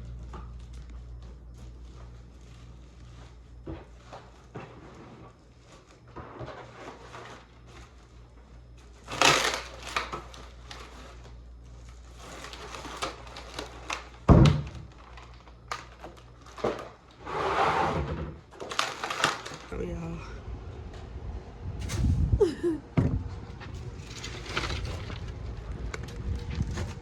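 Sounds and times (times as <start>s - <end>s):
steady low hum: 0.0s - 17.3s, 18.0s - 27.0s.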